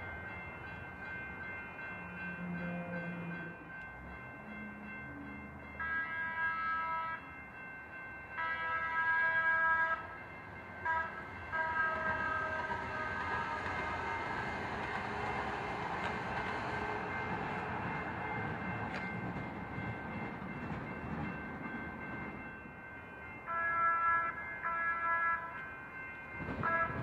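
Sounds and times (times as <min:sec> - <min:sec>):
train horn blasts: 0:02.2 - 0:03.5, 0:05.8 - 0:07.2, 0:08.4 - 0:10.1, 0:10.8 - 0:14.3, 0:23.5 - 0:25.6, 0:26.6 - 0:27.0
train rumbling past: 0:08.5 - 0:23.4.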